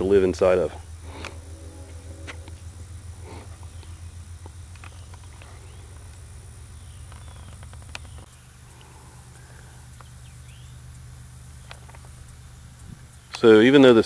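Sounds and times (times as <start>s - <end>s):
steady low rumble: 0.0s - 13.3s
faint high whine: 0.0s - 14.0s
bird chirps: 4.8s - 8.5s, 9.4s - 10.8s.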